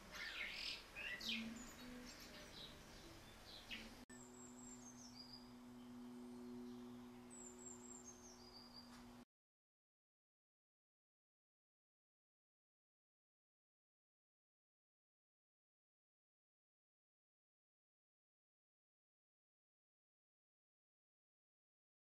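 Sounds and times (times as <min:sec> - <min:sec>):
faint birdsong: 0:00.0 - 0:09.3
low steady hum: 0:00.0 - 0:09.3.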